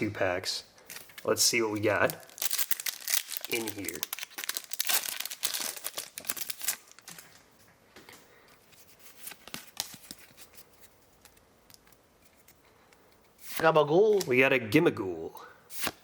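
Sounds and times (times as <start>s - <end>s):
cards rustling and clicking: 0.9s - 7.3s, 8.6s - 12.6s
foil wrapper tearing and crinkling: 1.2s - 7.1s.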